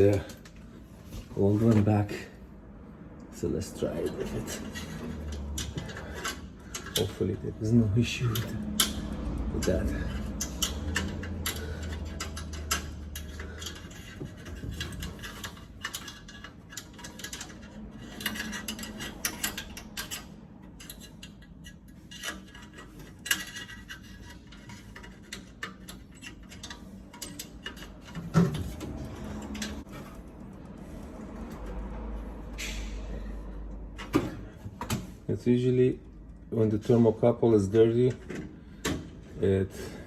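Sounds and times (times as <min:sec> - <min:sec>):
metal clicks and clinks of tools: 0:08.2 - 0:30.2.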